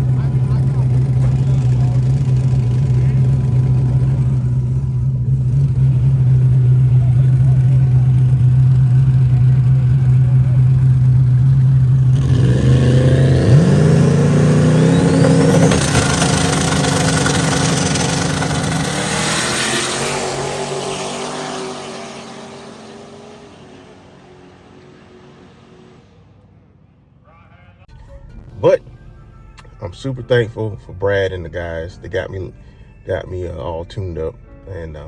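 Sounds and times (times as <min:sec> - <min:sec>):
drag car engine revving: 0:00.0 - 0:26.6.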